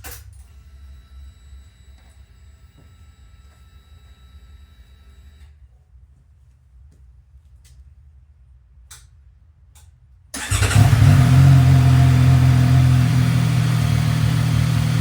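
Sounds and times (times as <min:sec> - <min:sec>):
motorcycle engine starting and idling: 0:10.4 - 0:15.0.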